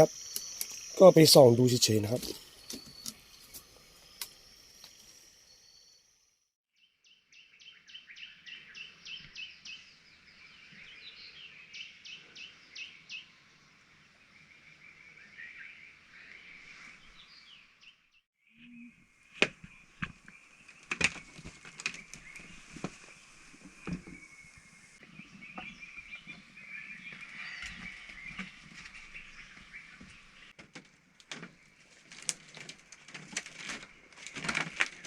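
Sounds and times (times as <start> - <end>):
frogs calling with clicky notes: 0.0 - 5.0.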